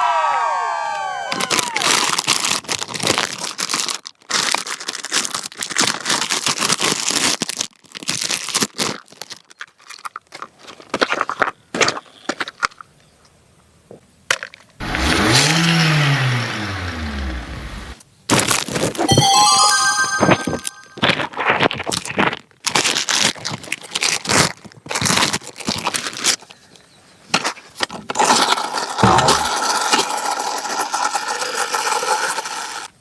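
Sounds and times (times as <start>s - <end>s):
packaging crinkling and tearing: 1.4s - 11.5s, 18.3s - 19.1s, 21.4s - 26.7s
rising and falling pitched sound: 19.1s - 21.1s.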